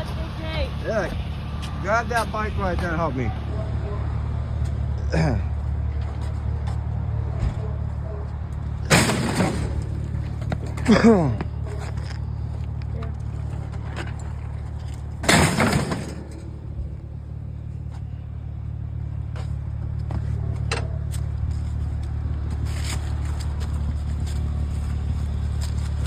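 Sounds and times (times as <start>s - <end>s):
vehicle engine idling: 0.0s - 26.0s
scrap metal crashing: 8.8s - 11.9s, 14.0s - 17.1s
metal knocks and clanks: 8.8s - 12.1s, 13.0s - 17.2s.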